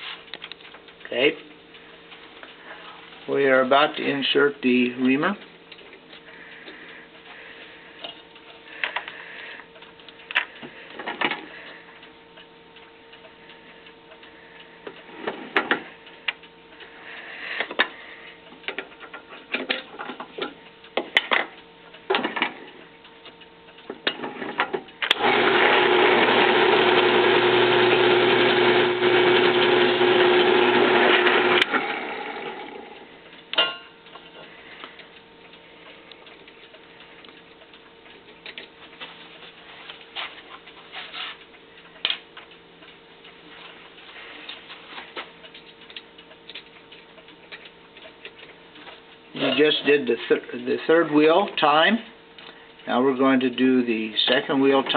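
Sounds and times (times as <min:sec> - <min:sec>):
drill press motor running: 0:25.0 - 0:33.1.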